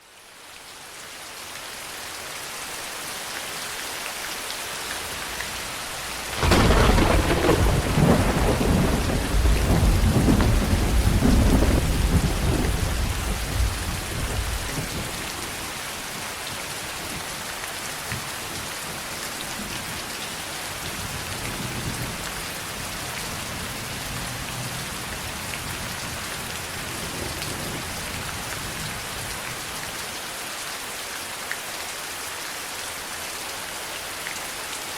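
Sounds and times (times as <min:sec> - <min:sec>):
heavy rain: 0:00.0 - 0:34.9
thunderclap rumbling: 0:05.6 - 0:15.6.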